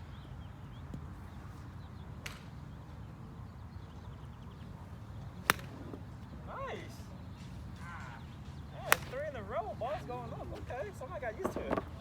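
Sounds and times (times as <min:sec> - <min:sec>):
golf club striking ball: 0:05.4 - 0:05.9.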